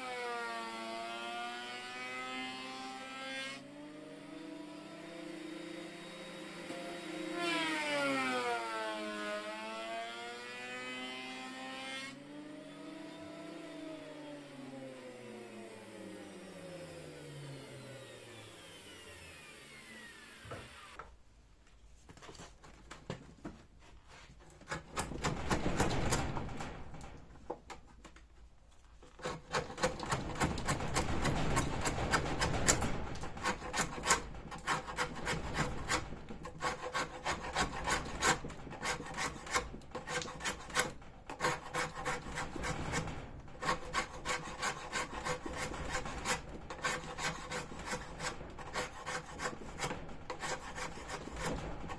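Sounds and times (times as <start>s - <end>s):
sawmill engine winding down: 12.4s - 21.0s
wood scraping and rubbing: 28.8s - 51.9s.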